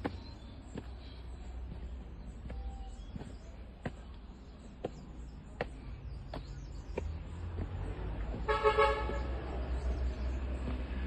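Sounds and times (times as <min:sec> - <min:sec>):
vehicle horn toot: 0:08.4 - 0:09.4.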